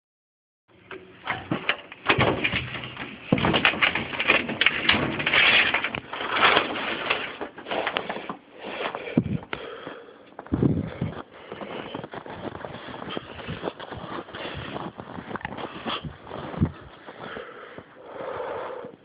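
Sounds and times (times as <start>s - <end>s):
footsteps crunching through deep snow: 9.8s - 18.4s.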